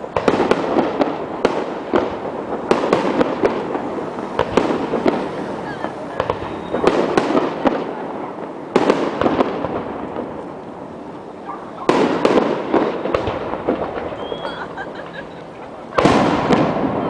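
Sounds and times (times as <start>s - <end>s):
crackling pops: 0.0s - 14.8s, 15.4s - 17.0s
fireworks bursts: 0.0s - 17.0s.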